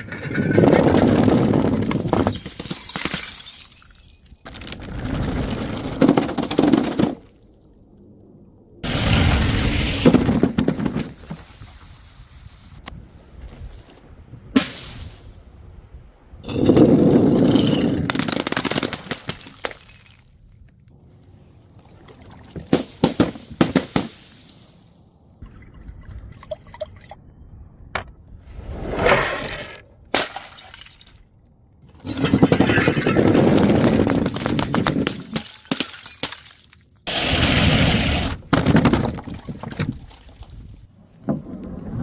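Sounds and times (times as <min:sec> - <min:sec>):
glass breaking and crunching: 0:01.7 - 0:04.8, 0:30.1 - 0:31.2, 0:34.0 - 0:37.0.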